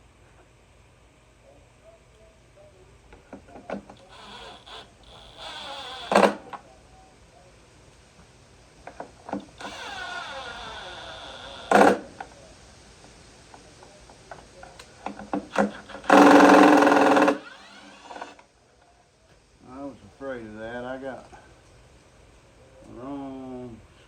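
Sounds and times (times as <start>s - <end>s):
cordless drill running: 4.1s - 6.4s, 9.6s - 12.0s, 15.5s - 18.4s.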